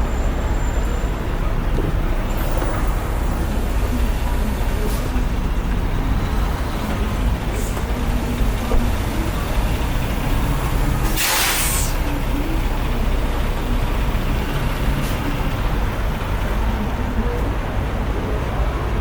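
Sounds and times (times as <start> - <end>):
diesel truck engine idling: 0.0 - 19.0
air brakes hissing: 11.0 - 12.0.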